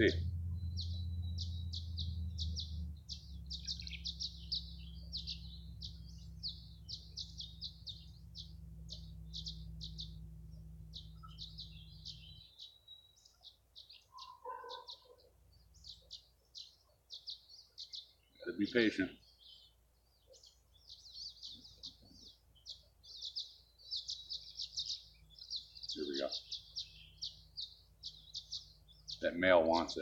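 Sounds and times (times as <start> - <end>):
low steady rumble: 0.0 - 13.0, 20.6 - 30.0
swallows twittering: 0.0 - 30.0.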